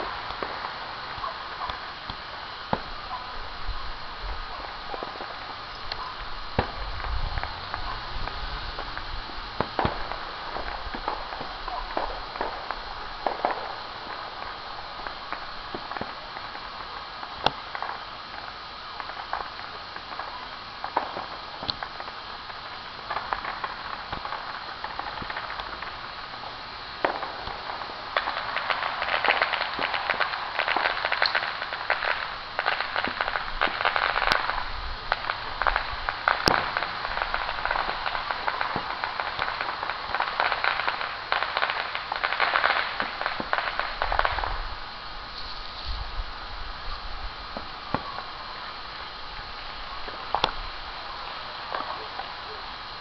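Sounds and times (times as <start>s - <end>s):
fireworks pops: 0.0s - 46.1s, 46.9s - 52.8s
distant fireworks crackling: 0.0s - 53.0s.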